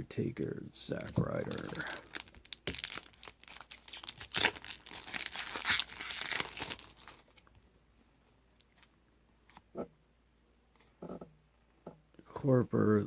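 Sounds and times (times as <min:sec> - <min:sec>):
card pack wrapper crinkling: 0:01.3 - 0:07.5.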